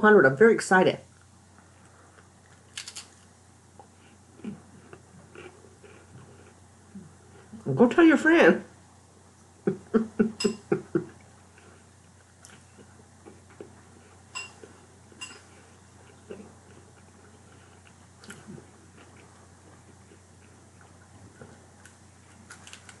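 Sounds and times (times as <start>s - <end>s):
chewing: 1.2s - 7.5s, 11.2s - 23.0s.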